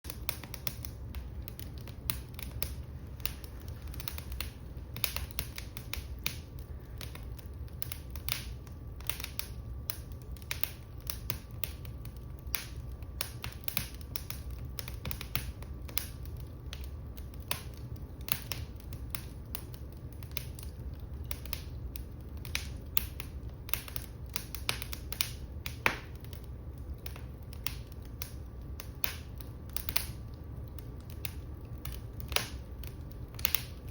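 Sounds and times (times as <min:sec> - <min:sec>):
low steady fire rumble: 0:00.0 - 0:33.9
wood fire crackling and popping: 0:00.1 - 0:33.9.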